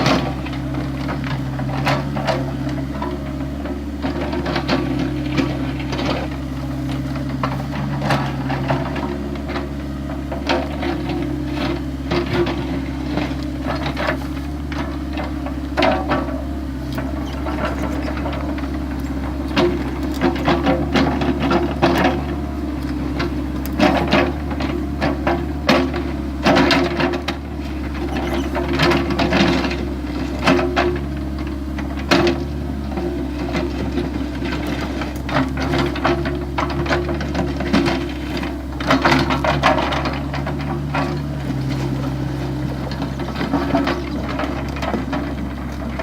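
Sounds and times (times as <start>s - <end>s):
bucket clanking and scraping: 0.0s - 46.0s
excavator engine running: 0.0s - 46.0s.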